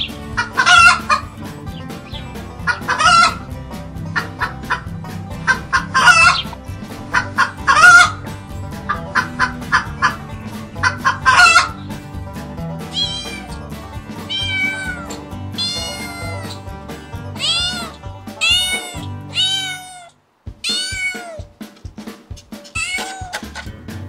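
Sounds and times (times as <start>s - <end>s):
chickens clucking: 0.0s - 20.0s, 20.7s - 24.0s
background music: 0.0s - 24.0s
cat meowing: 12.9s - 13.6s, 14.3s - 16.6s, 17.4s - 21.5s, 22.6s - 23.6s.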